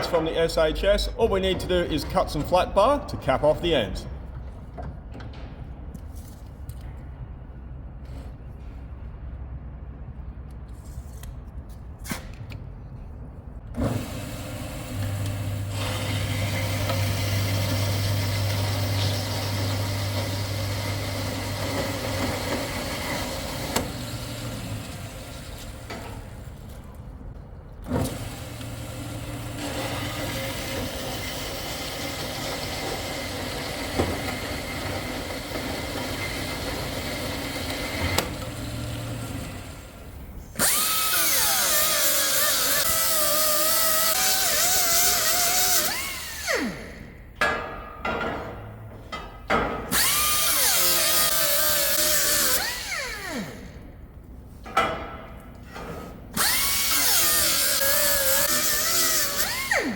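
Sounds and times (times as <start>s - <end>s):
power tools whirring on steel: 13.8s - 26.7s, 27.8s - 47.2s, 49.9s - 53.8s, 56.3s - 59.9s.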